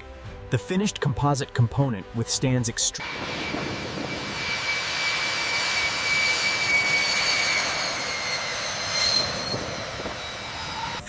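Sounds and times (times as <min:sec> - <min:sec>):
jet engine running: 0:03.0 - 0:11.0.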